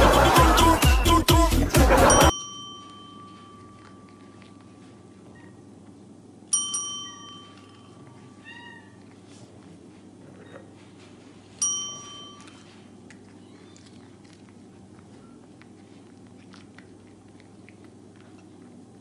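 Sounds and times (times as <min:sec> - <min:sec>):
desk bell ding: 0:06.5 - 0:07.9.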